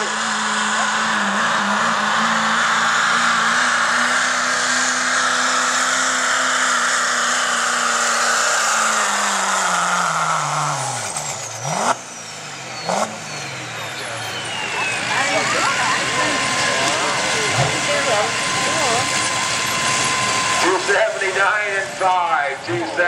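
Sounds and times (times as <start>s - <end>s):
diesel truck engine full throttle: 0.0s - 23.0s
high whistle winding down: 4.9s - 21.6s.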